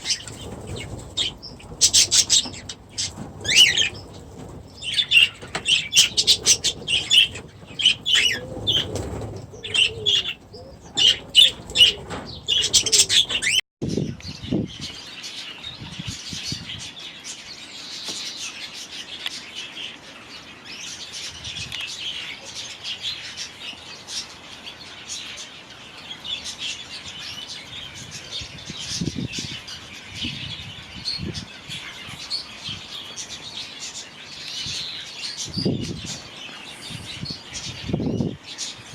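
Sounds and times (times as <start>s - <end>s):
budgies chattering and calling: 0.0s - 13.6s
wings flapping: 0.0s - 13.6s.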